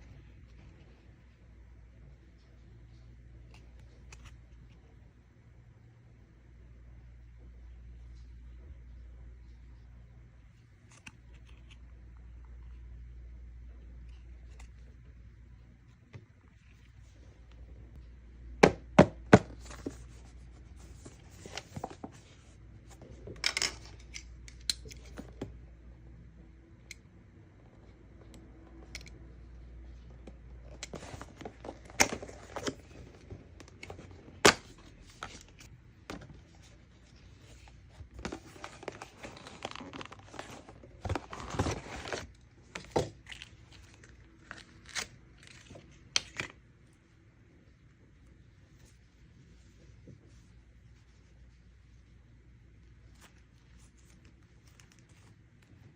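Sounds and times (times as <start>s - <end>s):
plastic and paper crinkling: 30.6s - 46.5s.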